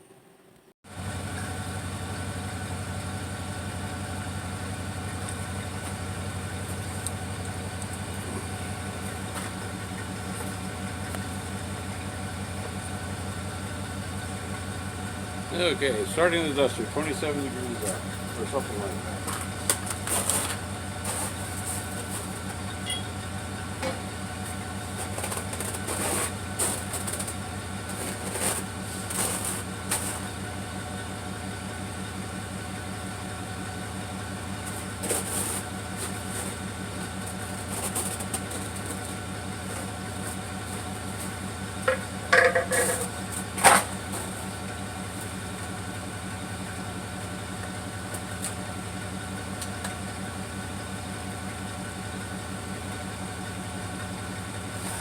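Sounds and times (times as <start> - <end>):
car engine idling: 0.9 - 55.0
sharp engine knocks: 41.8 - 44.4.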